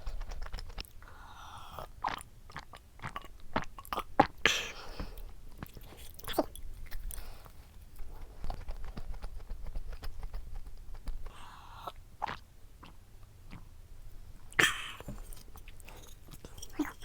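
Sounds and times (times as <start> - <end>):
crunchy chewing: 1.8 - 11.4, 14.4 - 17.0.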